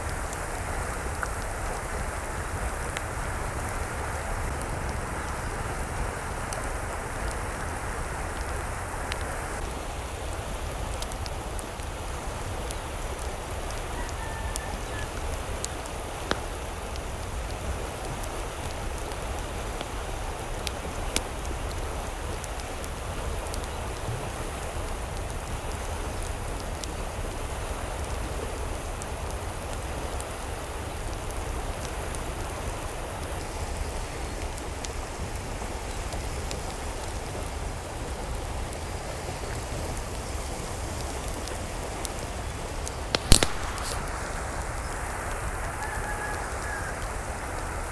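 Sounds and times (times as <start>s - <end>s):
water hissing: 43.3s - 45.1s.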